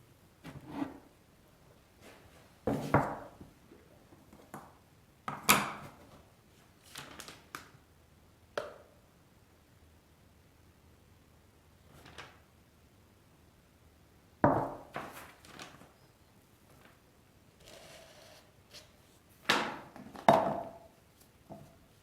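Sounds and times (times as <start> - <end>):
objects knocking and clattering: 19.5 - 20.9.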